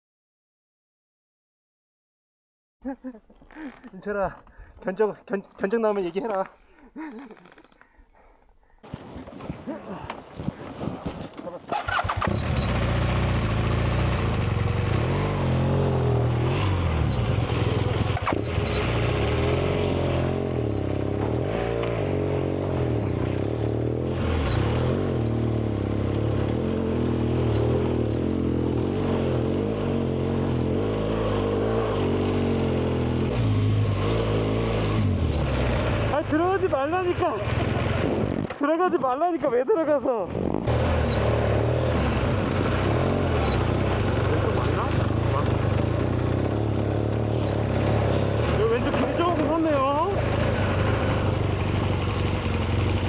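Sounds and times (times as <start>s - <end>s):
motorcycle engine: 8.8s - 38.8s, 40.3s - 53.0s.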